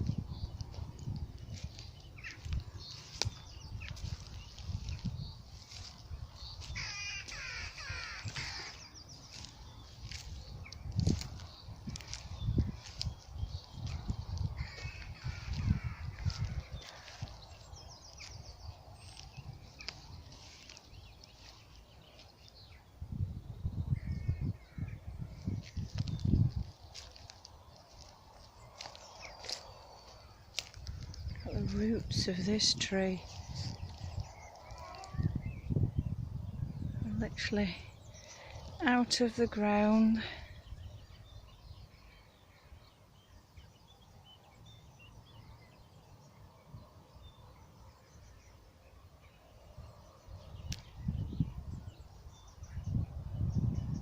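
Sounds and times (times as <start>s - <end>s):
birds singing and calling: 0.0s - 54.0s
footsteps of a walker: 8.3s - 18.4s, 25.6s - 31.4s.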